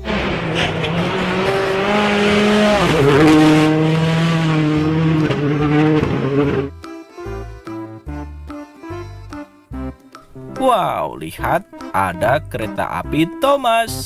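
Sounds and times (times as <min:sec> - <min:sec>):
rally car engine passing: 0:00.0 - 0:06.7.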